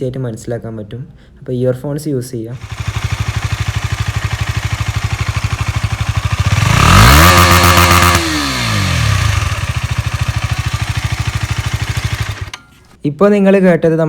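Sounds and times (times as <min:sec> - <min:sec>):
motorcycle engine idling and revving: 0:02.6 - 0:12.8.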